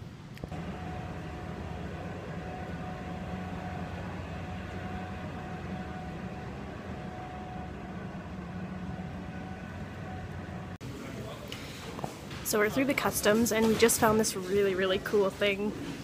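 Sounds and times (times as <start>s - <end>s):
vehicle droning in motion: 0.4s - 10.8s
faint higher tone: 0.6s - 10.8s.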